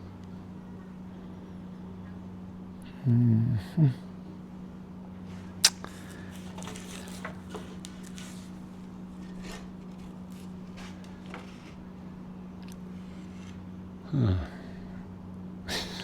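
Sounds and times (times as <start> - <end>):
steady low hum: 0.0 - 16.0
wooden stakes clicking and rubbing: 5.6 - 12.0.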